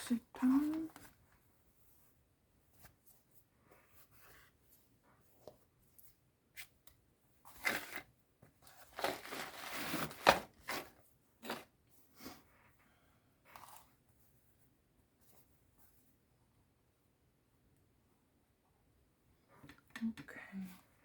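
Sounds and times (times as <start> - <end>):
paper and fabric rustling: 7.5 - 11.7.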